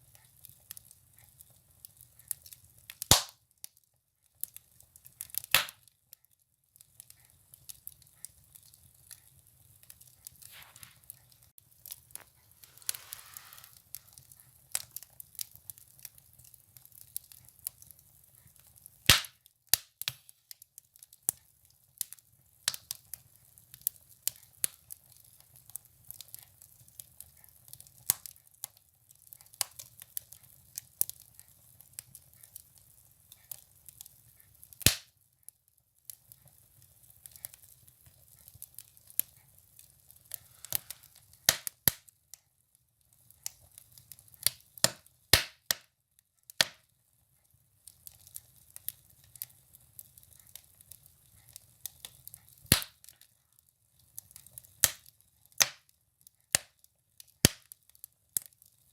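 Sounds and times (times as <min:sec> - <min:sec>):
firewood crackling in stove: 0:00.0 - 0:58.9
loud wood snaps: 0:03.1 - 0:03.3.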